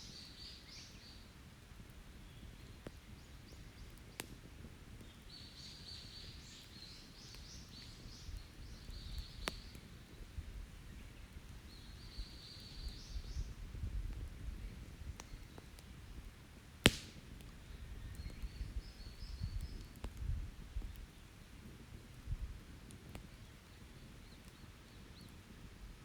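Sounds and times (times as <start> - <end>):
campfire crackling and popping: 0.2 - 26.0
songbird singing: 5.0 - 13.6, 17.6 - 20.0.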